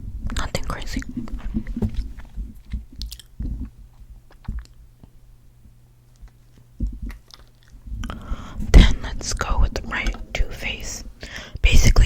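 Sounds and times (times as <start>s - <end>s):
faint steady hum: 0.0s - 12.0s
low thump: 7.9s - 11.4s.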